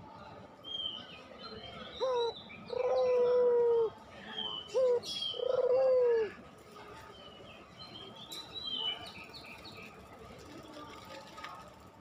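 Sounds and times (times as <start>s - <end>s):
dove cooing: 2.0s - 3.9s, 4.8s - 6.3s
small birds chirping: 7.2s - 11.1s.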